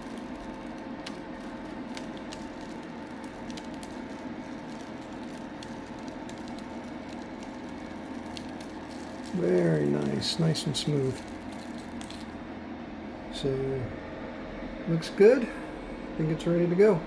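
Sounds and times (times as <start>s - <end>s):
vinyl peeling crackles: 0.0s - 12.7s
electrical hum: 0.0s - 17.0s.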